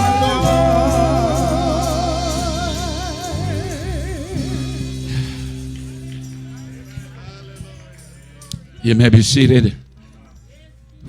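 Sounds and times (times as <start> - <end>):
singer holding a long note: 0.0 - 7.9
sustained keyboard chords: 0.0 - 10.0.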